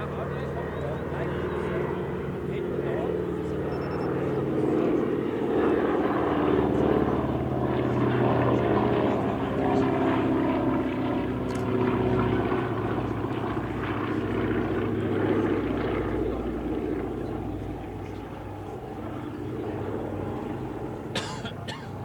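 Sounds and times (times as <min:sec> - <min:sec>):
propeller aircraft engine drone: 0:00.0 - 0:22.0.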